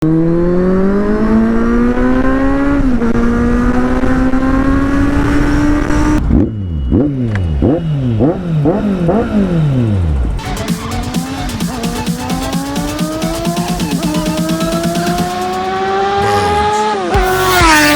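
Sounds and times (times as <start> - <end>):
motorcycle engine accelerating: 0.0 - 17.9
motorcycle throttle blips: 2.9 - 9.9.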